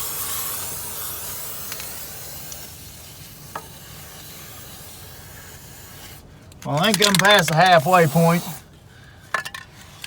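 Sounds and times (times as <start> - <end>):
aerosol spray hiss: 0.0 - 6.2, 7.7 - 8.6.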